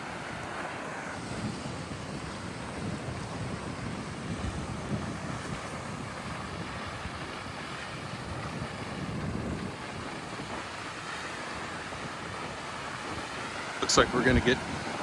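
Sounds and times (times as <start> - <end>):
wind buffeting microphone: 0.0 - 15.0
waterfall rushing: 10.5 - 15.0.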